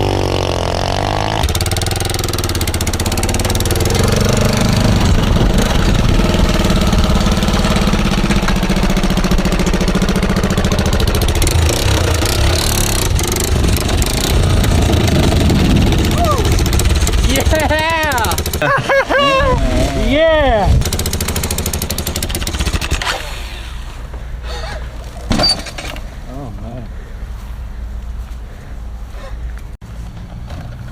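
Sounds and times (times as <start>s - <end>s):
quad engine running: 0.0s - 23.5s.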